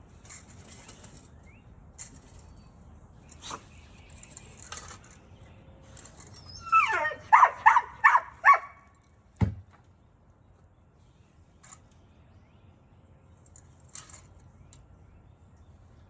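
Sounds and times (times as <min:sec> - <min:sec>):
dog whining: 0:06.4 - 0:08.8
dog yipping: 0:06.4 - 0:08.9
dull thump: 0:09.4 - 0:09.8.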